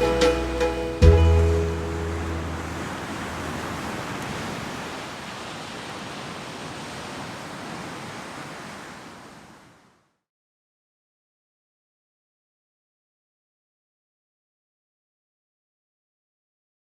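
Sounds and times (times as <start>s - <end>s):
sea waves rushing: 0.0s - 10.1s.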